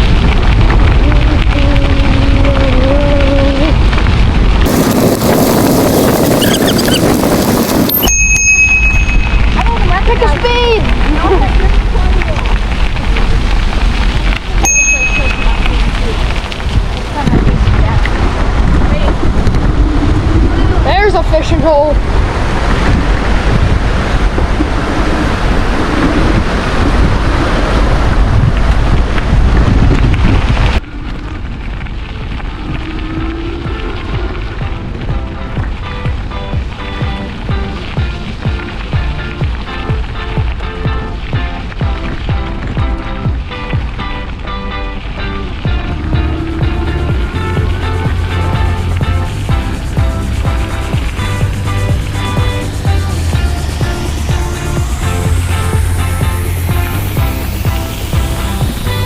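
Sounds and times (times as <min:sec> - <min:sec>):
rushing hiss: 0:00.0 - 0:09.6, 0:45.2 - 0:59.0
motorbike whine: 0:00.0 - 0:09.8, 0:17.2 - 0:21.0, 0:29.4 - 0:39.2, 0:45.1 - 0:59.0
wind buffeting microphone: 0:00.0 - 0:59.0
faint steady high tone: 0:07.9 - 0:09.4.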